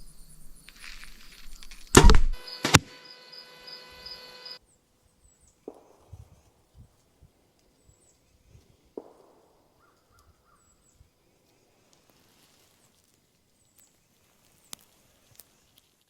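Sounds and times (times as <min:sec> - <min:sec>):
sharp click: 0:01.5 - 0:02.9
distant bird calls: 0:07.6 - 0:11.8.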